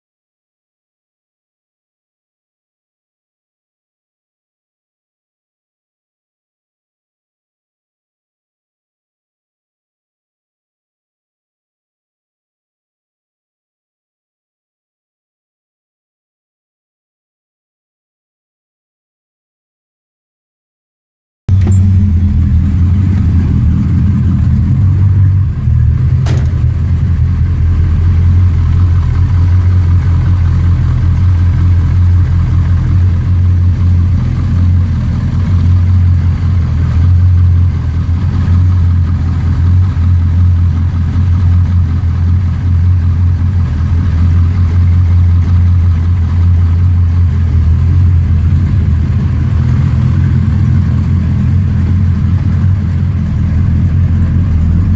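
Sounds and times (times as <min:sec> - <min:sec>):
car engine exhaust idling: 0:21.5 - 0:54.9.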